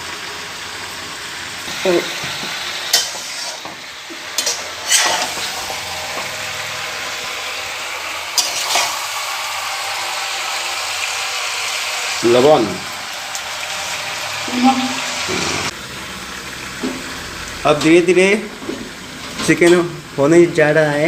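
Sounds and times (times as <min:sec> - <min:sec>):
curry sizzling in a pan: 0:00.0 - 0:21.0
spoon knocking and scraping pan: 0:02.2 - 0:05.5.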